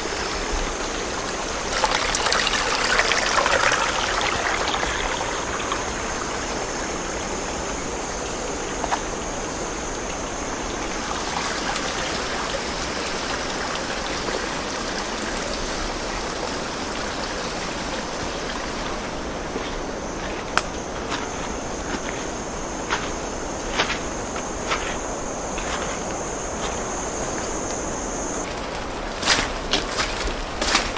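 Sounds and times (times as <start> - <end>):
thin high steady tone: 0.0 - 13.2
stream rushing: 0.0 - 30.9.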